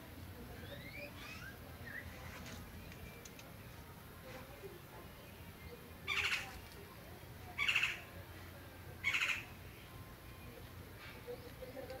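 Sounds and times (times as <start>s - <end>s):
harsh bird calls: 6.1s - 6.5s, 7.6s - 8.1s, 9.0s - 9.6s.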